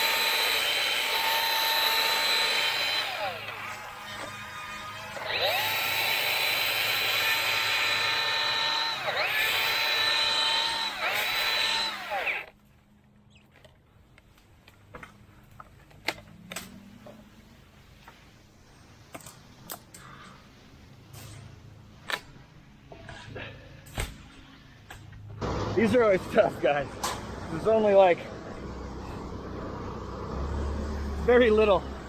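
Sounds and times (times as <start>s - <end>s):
electric chainsaw cutting: 0.0s - 12.6s.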